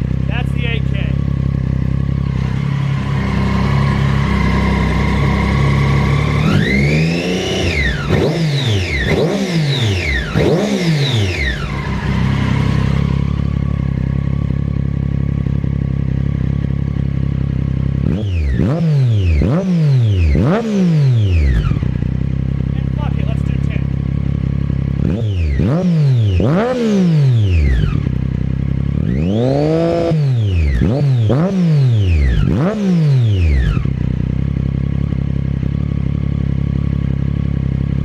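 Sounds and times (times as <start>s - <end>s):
motorcycle engine idling and revving: 0.0s - 38.0s.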